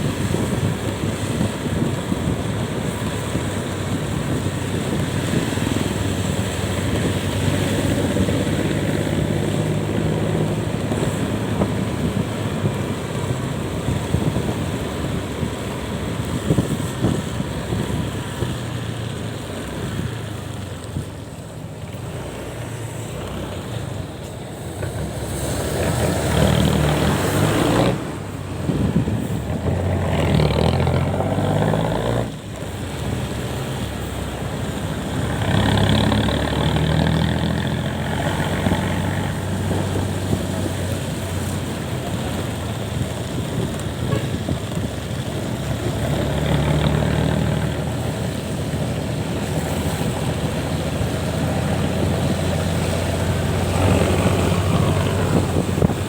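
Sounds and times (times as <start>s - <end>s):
road and wind noise: 0.0s - 56.0s
vehicle engine accelerating: 0.0s - 56.0s.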